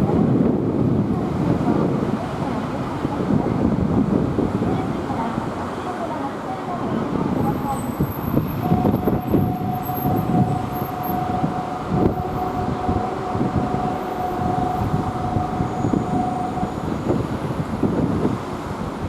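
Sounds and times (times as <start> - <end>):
electric train rumbling: 0.0 - 19.0
train whine: 7.2 - 18.7.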